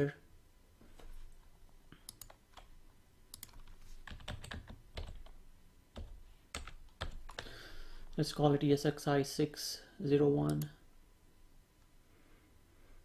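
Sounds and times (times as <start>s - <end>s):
keyboard typing: 2.0s - 2.7s, 3.3s - 5.4s, 6.0s - 7.5s.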